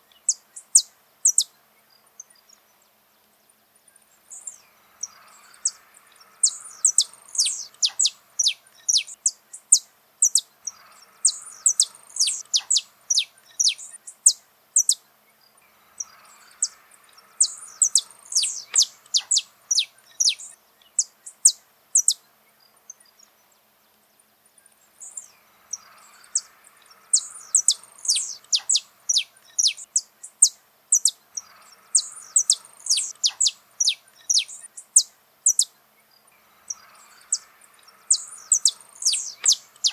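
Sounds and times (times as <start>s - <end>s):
finch singing high sharp notes: 4.3s - 15.0s, 15.8s - 22.2s, 25.0s - 35.8s, 36.4s - 39.9s.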